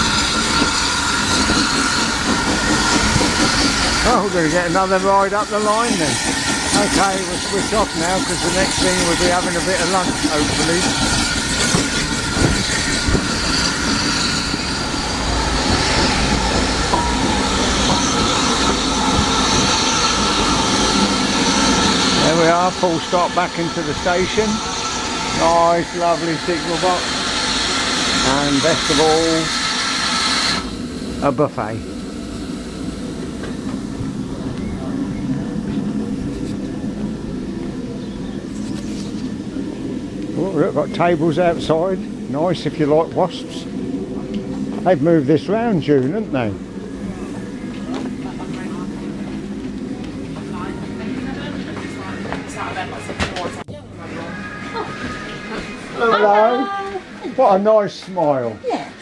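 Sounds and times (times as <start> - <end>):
train wheels knocking: 0.0 - 22.5
locomotive engine humming: 0.0 - 59.0
train rumbling on track: 0.0 - 59.0.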